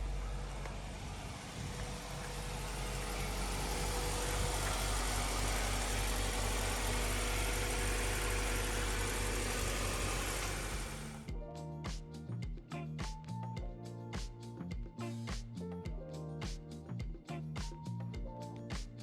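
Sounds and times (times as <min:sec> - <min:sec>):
car engine running: 0:00.0 - 0:11.3.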